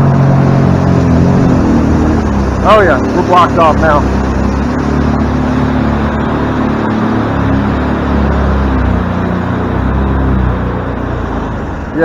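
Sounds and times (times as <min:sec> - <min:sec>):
boat engine running: 0:00.0 - 0:12.0
rushing noise: 0:00.0 - 0:12.0.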